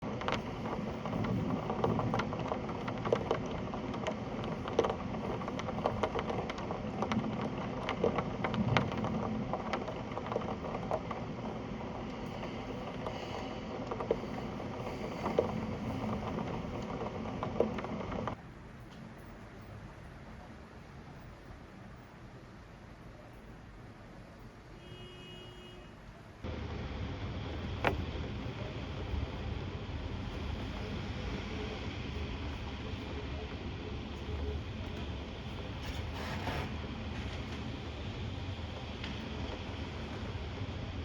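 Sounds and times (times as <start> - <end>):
heavy raindrops tapping: 0.0 - 18.4
steady rain falling: 0.0 - 24.5, 26.1 - 41.0.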